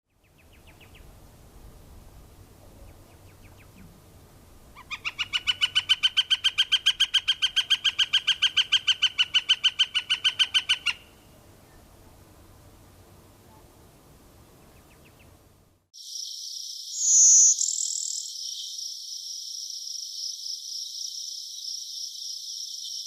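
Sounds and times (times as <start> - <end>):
rapid bird call notes: 4.8 - 11.3
bird trills: 16.0 - 23.0.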